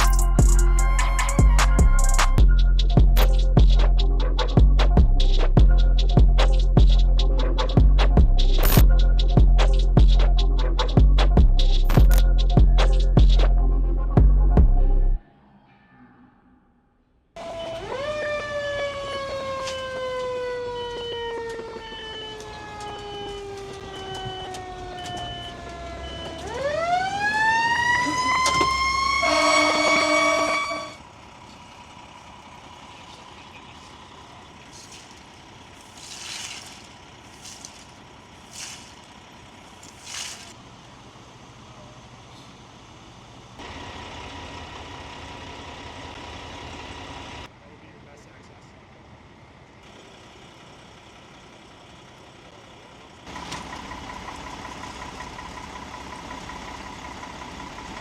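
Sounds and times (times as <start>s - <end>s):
fire engine siren winding: 0.0s - 2.4s, 17.4s - 31.2s
horn blast: 28.1s - 31.0s.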